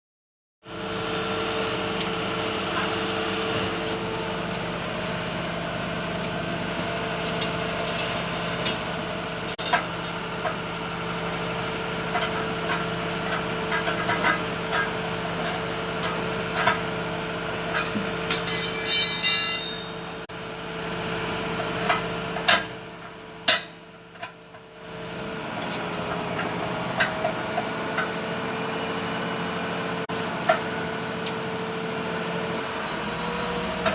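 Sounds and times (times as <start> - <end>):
engine or compressor humming: 0.6 - 33.9
metal knocks and clanks: 17.7 - 20.1.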